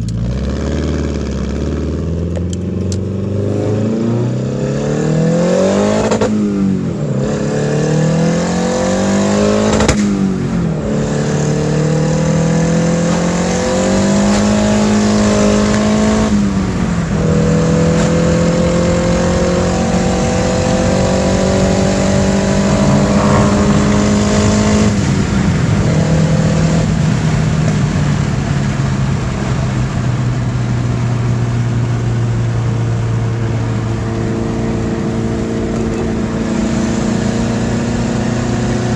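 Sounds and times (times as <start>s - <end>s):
car engine pulling under load: 11.6s - 32.5s.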